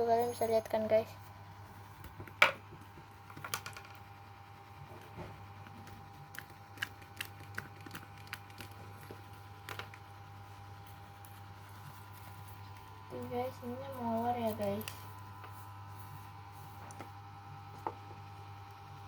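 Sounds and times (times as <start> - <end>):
steady low hum: 0.0 - 19.0
slime being kneaded by hand: 4.8 - 18.2.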